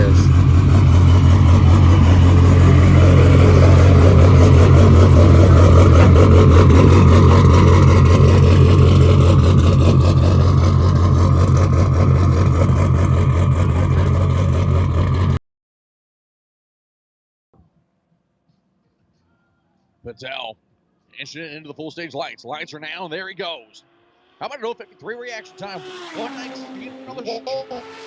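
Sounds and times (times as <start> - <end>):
race car engine idling: 0.0 - 15.4.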